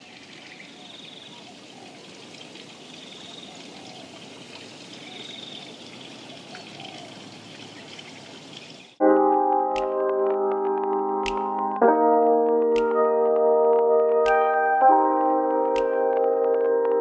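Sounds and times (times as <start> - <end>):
water trickling: 0.0 - 9.0.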